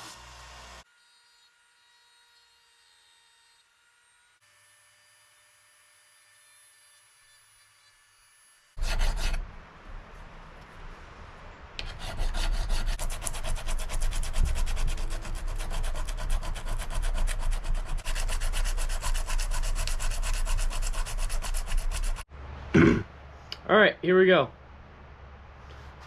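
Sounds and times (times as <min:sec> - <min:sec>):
sandpaper rubbing on knife: 0:08.8 - 0:09.4, 0:11.8 - 0:22.2.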